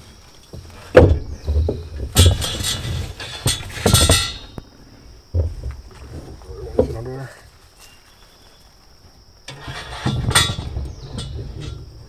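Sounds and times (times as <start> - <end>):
wooden boards clattering: 0.0 - 7.6, 9.5 - 12.0.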